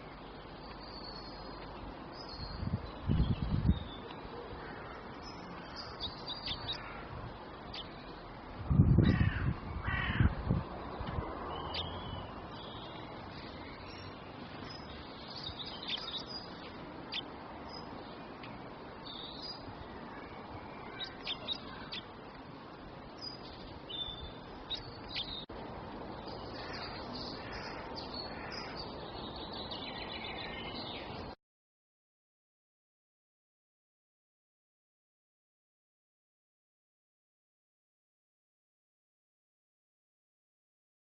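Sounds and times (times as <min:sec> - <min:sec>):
birds chirping: 0:00.0 - 0:31.4
outdoor background hiss: 0:00.0 - 0:31.4.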